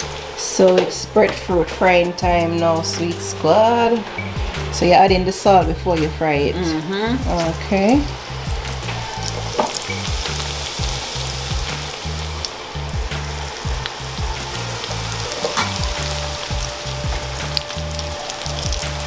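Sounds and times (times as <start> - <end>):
deep-frying sizzle and crackle: 0.0 - 6.6, 7.2 - 19.0
background music: 0.0 - 19.0.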